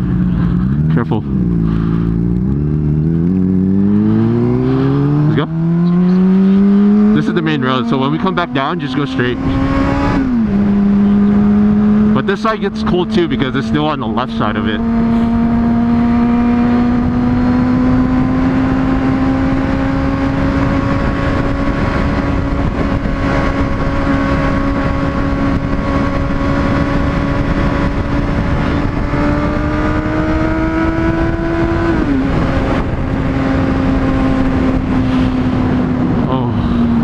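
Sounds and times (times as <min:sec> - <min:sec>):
motorcycle engine running: 0:00.0 - 0:37.0
wind rush: 0:14.7 - 0:37.0.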